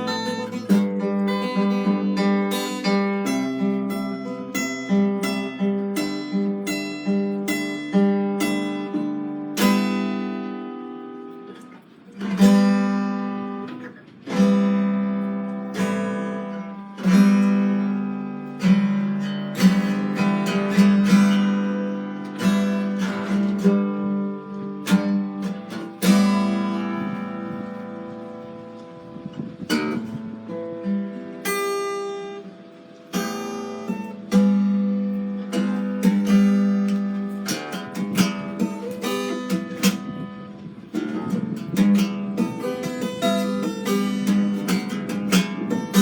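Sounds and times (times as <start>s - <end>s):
acoustic guitar picking and strumming: 0.0s - 46.0s.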